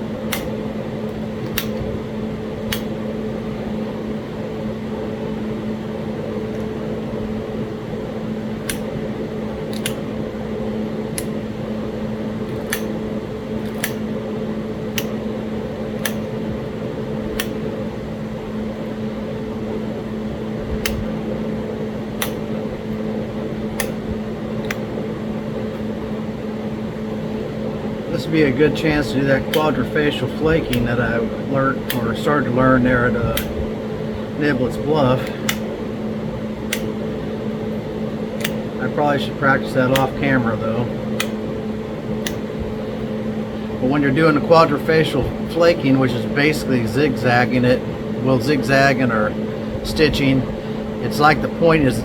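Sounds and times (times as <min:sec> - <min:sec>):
steady fan hum: 0:00.0 - 0:52.0.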